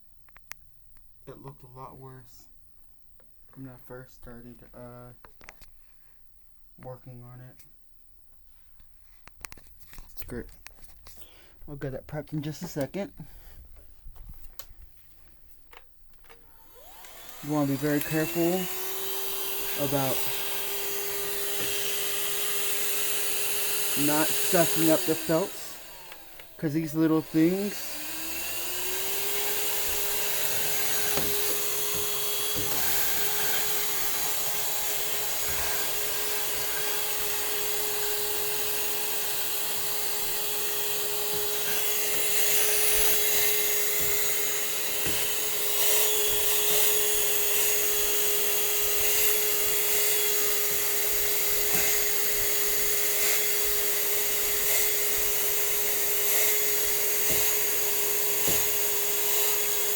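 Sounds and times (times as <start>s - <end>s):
vacuum cleaner running: 16.3s - 59.9s.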